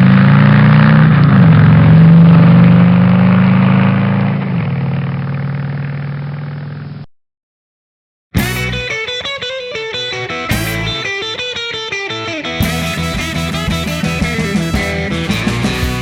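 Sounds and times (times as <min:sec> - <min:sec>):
motorcycle engine running: 0:12.6 - 0:16.0.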